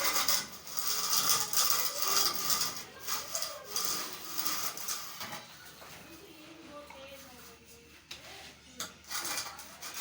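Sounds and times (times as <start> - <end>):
hand tool scraping building material: 0.0 - 5.4.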